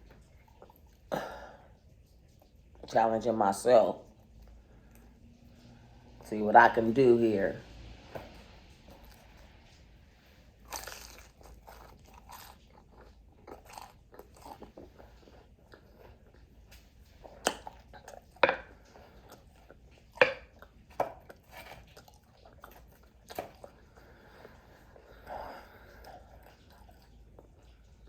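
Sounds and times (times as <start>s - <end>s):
crunchy biting and chewing: 10.6s - 24.6s.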